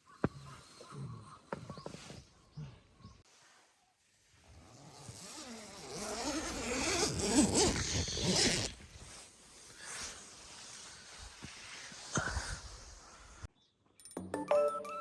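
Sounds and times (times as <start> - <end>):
zipper being pulled: 4.6 - 9.2.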